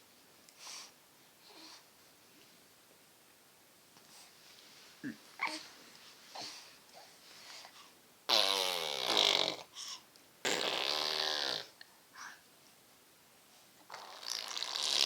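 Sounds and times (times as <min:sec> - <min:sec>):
baby blowing raspberries: 0:08.3 - 0:09.7, 0:10.4 - 0:11.7, 0:13.9 - 0:15.0.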